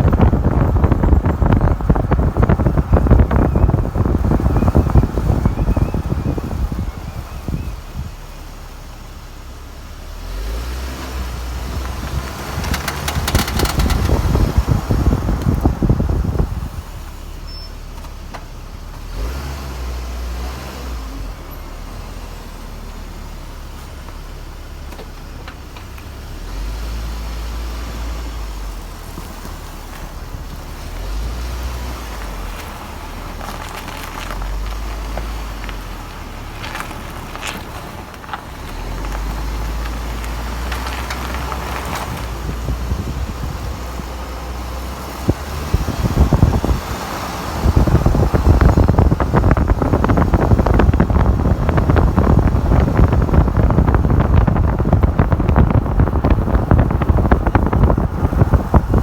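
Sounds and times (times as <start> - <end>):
vehicle moving: 0.0 - 9.2, 10.0 - 17.6, 23.3 - 59.0
rapid clicking: 12.6 - 14.6.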